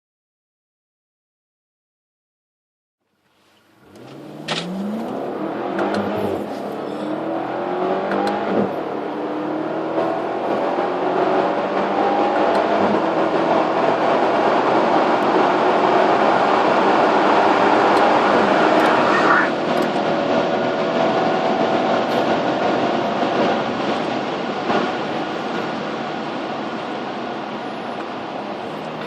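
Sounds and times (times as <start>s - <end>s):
car engine accelerating: 3.4s - 29.0s.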